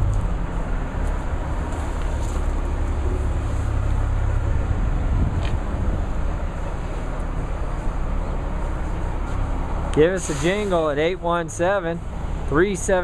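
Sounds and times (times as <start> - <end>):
low engine rumble: 0.0 - 13.0
outdoor background noise: 0.0 - 13.0.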